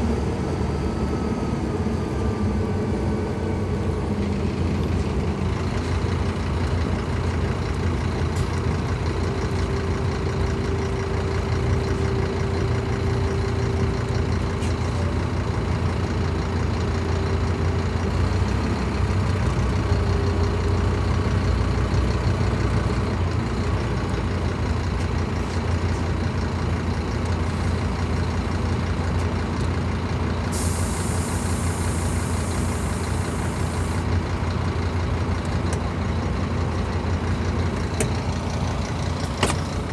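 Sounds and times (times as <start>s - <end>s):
bus diesel engine droning: 0.0s - 39.9s
air release hiss: 30.5s - 34.0s.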